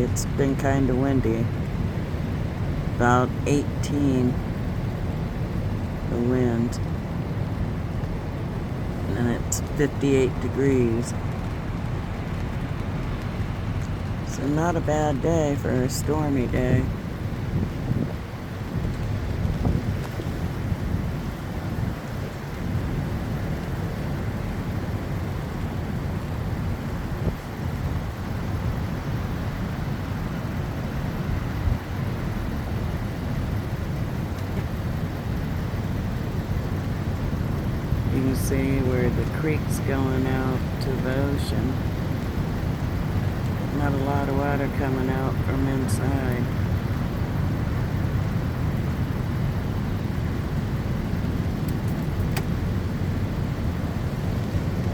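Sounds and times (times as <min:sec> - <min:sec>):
wind rumbling on microphone: 0:00.0 - 0:54.9
wind buffeting microphone: 0:16.5 - 0:38.8.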